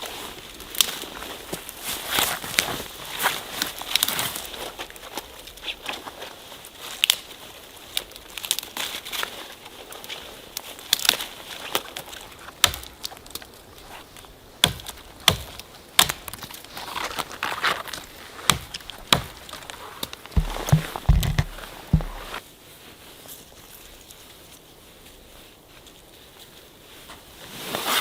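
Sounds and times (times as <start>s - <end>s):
brush rustling: 0.1s - 28.0s
branches cracking: 0.5s - 22.4s
dull low thumps: 20.4s - 22.4s.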